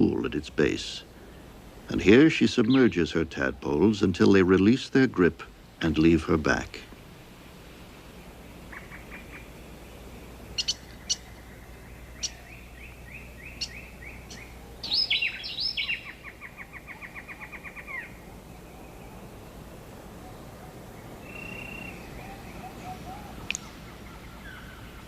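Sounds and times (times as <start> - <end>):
birds chirping: 0.0 - 25.0
faint steady background: 0.0 - 25.0
bird falling calls: 8.6 - 9.7, 10.3 - 25.0.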